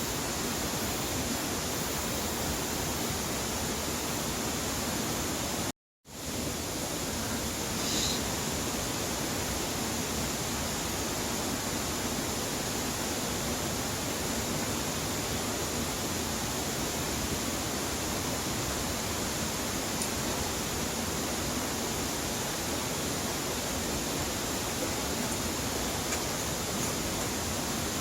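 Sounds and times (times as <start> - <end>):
stream rushing: 0.0 - 28.0.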